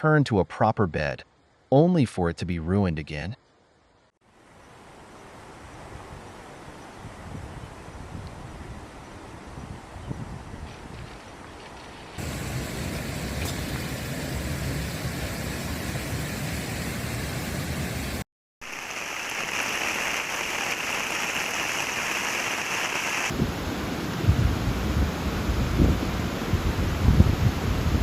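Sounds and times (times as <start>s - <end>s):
wind buffeting microphone: 7.0s - 11.5s, 24.2s - 28.0s
heavy rain: 12.2s - 23.9s
rushing water: 18.6s - 23.4s.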